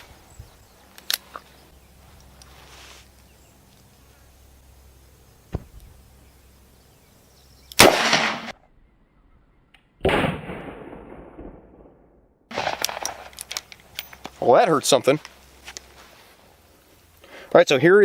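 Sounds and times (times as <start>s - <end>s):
revolver gunshot: 5.5s - 6.2s, 7.8s - 8.5s.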